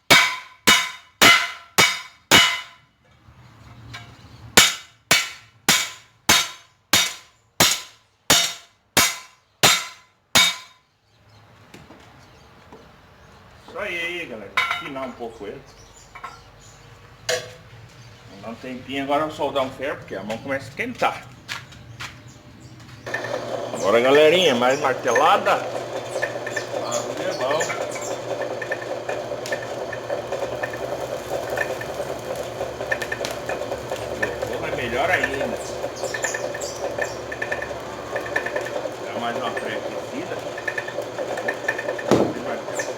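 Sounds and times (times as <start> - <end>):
hammer striking steel on anvil: 0.0 - 2.8, 4.6 - 10.8
steady mechanical hum: 13.4 - 42.9.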